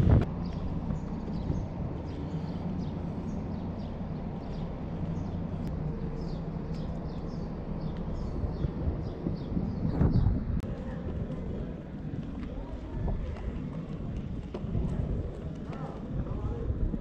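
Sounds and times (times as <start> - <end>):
steady low rumble: 0.0 - 17.0
small birds chirping: 0.2 - 11.0.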